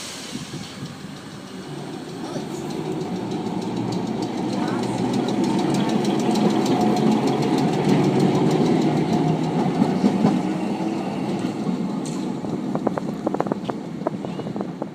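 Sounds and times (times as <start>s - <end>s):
tram wheels rumbling and rattling: 0.0s - 14.9s.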